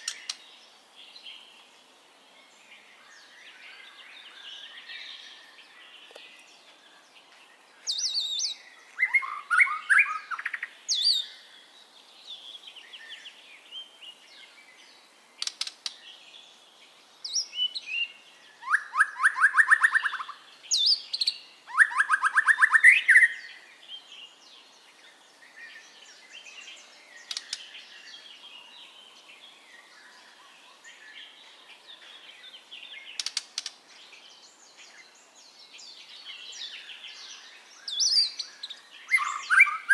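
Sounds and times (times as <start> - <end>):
songbird singing whistles and trills: 2.7 - 11.7, 17.2 - 39.9.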